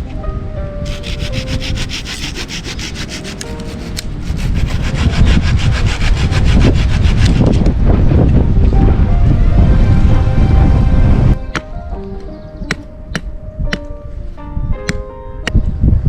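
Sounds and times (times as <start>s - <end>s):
hand saw cutting wood: 0.9s - 7.6s.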